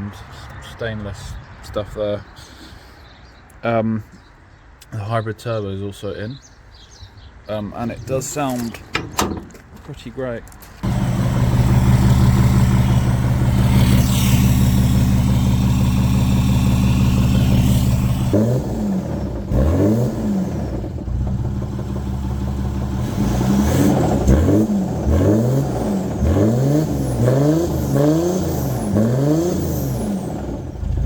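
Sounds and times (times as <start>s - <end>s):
diesel engine revving: 10.8s - 31.0s.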